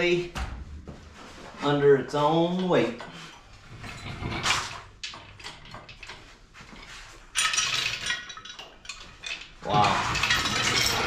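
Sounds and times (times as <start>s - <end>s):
metal knocks and shuffling: 0.0s - 11.0s
harsh metallic rattle: 3.3s - 11.0s.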